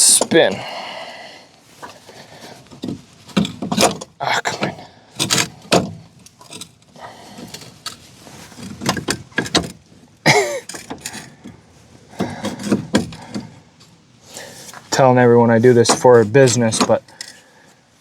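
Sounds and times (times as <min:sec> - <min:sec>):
metallic clanks and rattles: 0:02.8 - 0:13.6.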